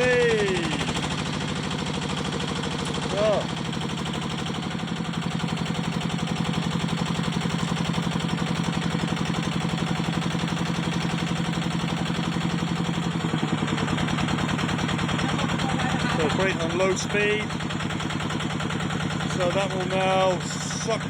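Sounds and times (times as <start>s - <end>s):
small pump engine running: 0.0s - 21.0s.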